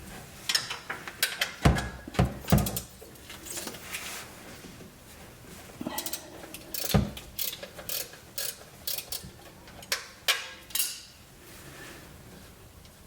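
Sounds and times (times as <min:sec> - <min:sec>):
wrench clicking and knocking on metal: 0:02.4 - 0:02.9, 0:06.0 - 0:11.1.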